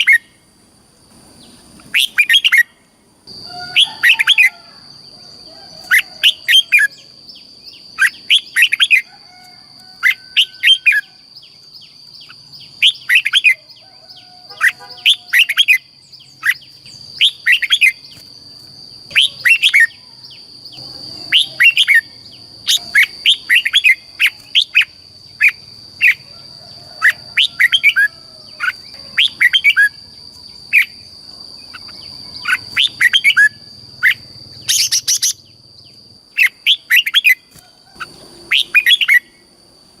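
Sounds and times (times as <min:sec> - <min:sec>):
bird singing whistled notes: 0:00.0 - 0:00.4, 0:01.9 - 0:02.8, 0:05.8 - 0:09.1, 0:10.0 - 0:18.2, 0:19.0 - 0:26.2, 0:27.0 - 0:30.1, 0:31.7 - 0:39.5.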